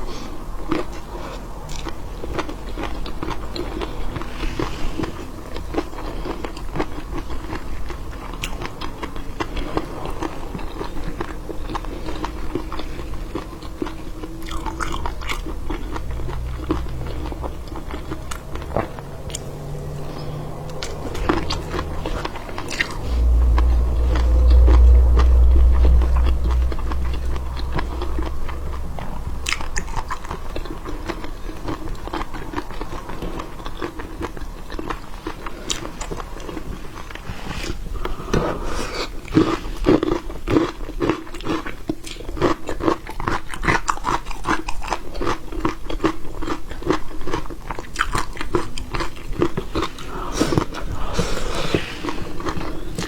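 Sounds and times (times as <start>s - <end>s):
chewing and crunching: 0.0s - 53.0s
low rumble: 9.2s - 35.1s, 48.3s - 53.0s.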